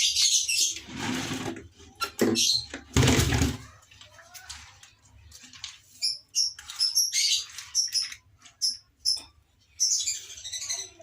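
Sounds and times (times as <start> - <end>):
small birds chirping: 0.0 - 0.9, 3.6 - 11.0.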